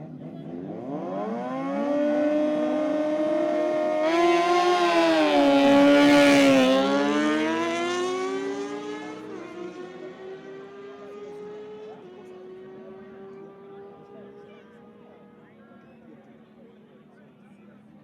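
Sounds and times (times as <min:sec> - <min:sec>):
motorcycle engine passing by: 0:00.4 - 0:09.7.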